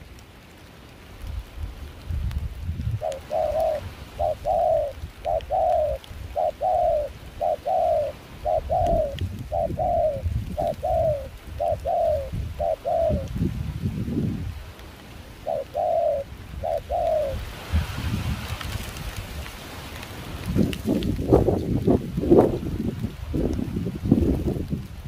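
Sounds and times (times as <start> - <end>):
dove cooing: 2.9 - 13.4, 15.4 - 17.5.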